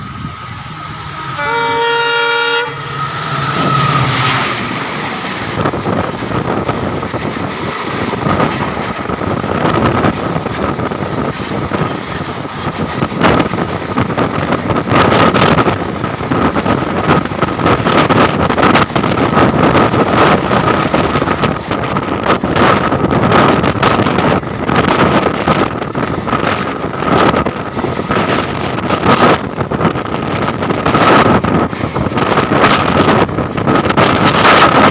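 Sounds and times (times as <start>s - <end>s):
train horn blast: 0.0s - 4.5s
high whine of electric train: 0.0s - 34.9s
train wheels running: 0.0s - 34.9s.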